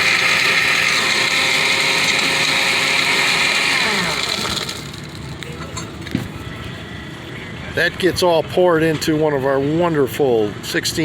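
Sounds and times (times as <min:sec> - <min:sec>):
blender blending ice: 0:00.0 - 0:05.4
motor winding down whine: 0:00.0 - 0:05.4.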